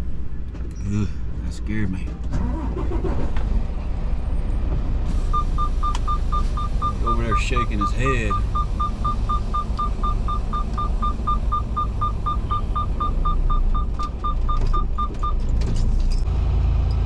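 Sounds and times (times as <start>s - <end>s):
diesel engine idling: 5.1s - 16.6s
electronic warning chime beeping: 5.3s - 15.4s.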